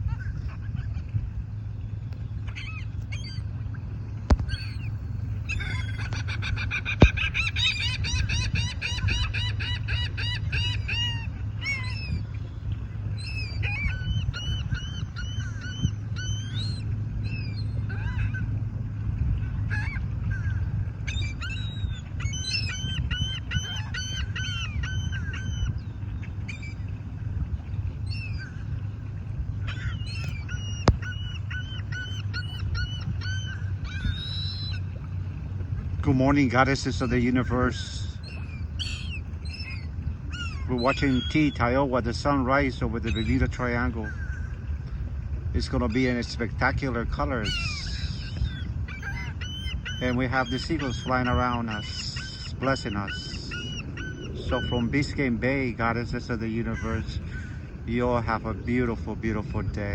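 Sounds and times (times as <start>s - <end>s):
low rumble: 0.0s - 36.1s
seagulls calling: 0.0s - 59.9s.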